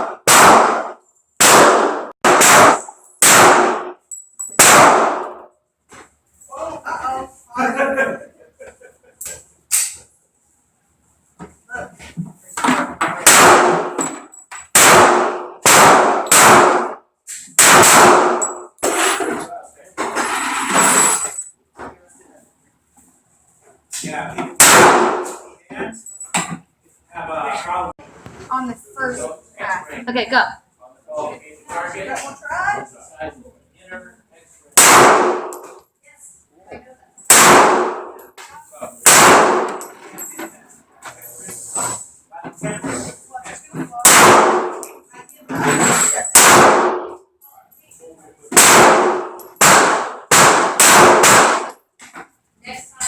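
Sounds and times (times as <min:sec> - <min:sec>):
handgun shots: 0:00.0 - 0:04.0, 0:04.6 - 0:05.4, 0:13.2 - 0:14.1, 0:14.7 - 0:18.7, 0:24.6 - 0:25.4, 0:34.8 - 0:35.8, 0:37.3 - 0:38.2, 0:39.0 - 0:39.9, 0:44.0 - 0:45.0, 0:46.3 - 0:47.2, 0:48.5 - 0:51.8.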